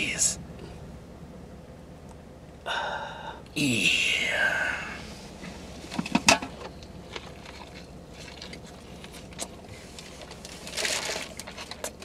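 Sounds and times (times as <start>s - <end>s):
chewing with mouth clicks: 6.9s - 9.7s.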